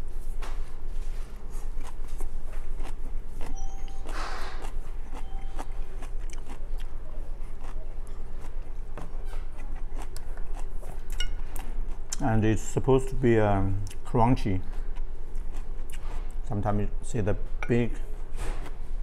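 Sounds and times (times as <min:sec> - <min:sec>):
steady low hum: 0:00.0 - 0:19.0
person chewing with crunches: 0:00.8 - 0:12.6, 0:13.7 - 0:16.5.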